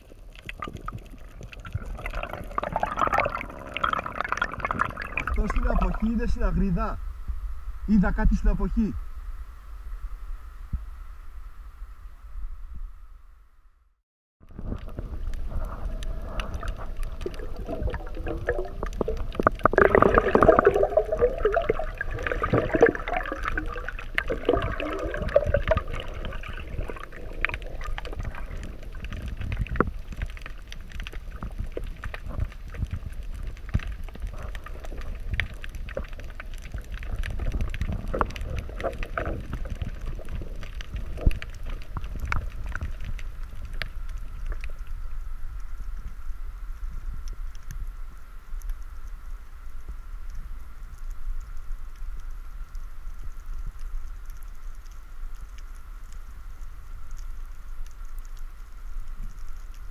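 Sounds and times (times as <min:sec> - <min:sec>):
bubbling and gurgling: 0:00.0 - 0:06.6, 0:14.4 - 0:46.0
underwater rumble of water: 0:00.0 - 0:13.7, 0:14.4 - 0:59.9.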